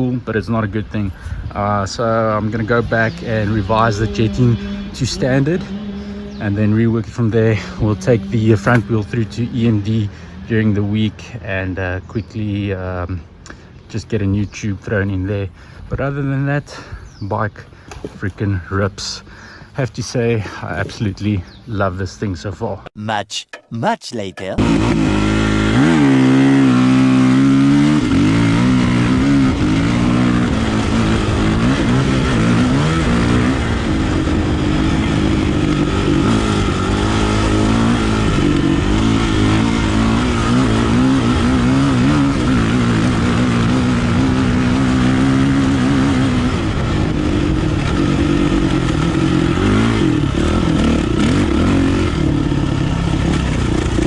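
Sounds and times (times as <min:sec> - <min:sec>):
dirt bike engine revving: 0:01.5 - 0:11.1, 0:24.6 - 0:54.0.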